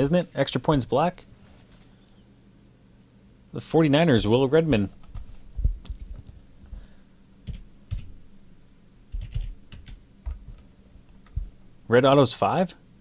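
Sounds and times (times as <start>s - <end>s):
keyboard and mouse clicks: 5.0s - 6.4s, 9.2s - 10.6s.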